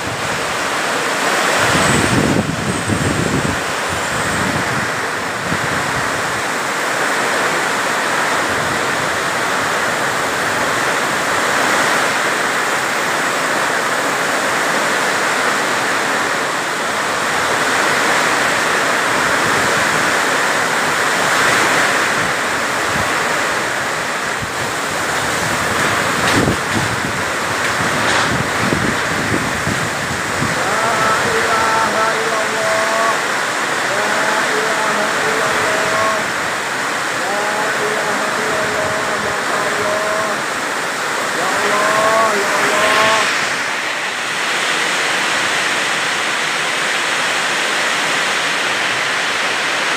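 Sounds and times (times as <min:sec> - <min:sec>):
heavy rain pouring: 0:00.0 - 0:49.9
strong wind: 0:00.0 - 0:49.9.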